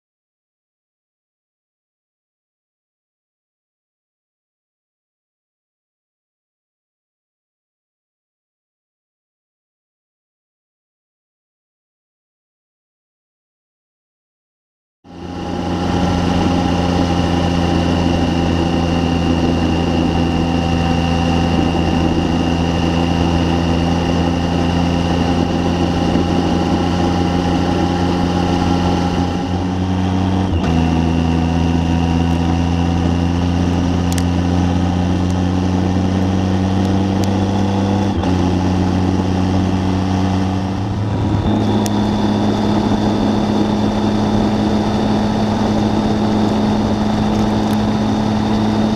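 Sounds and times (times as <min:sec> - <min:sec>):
motorcycle engine running: 0:15.1 - 0:48.9.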